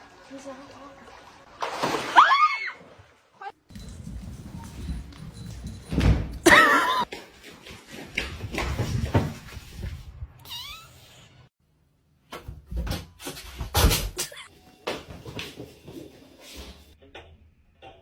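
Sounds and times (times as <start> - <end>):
knocks and bumps: 3.7 - 7.0.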